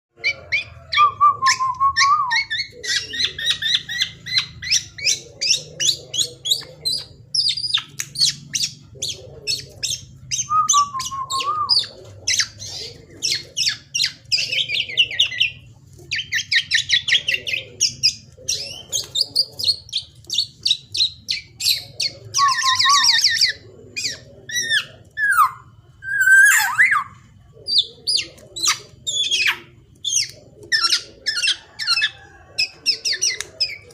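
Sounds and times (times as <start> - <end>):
bird chattering and whistling: 0.2 - 33.9.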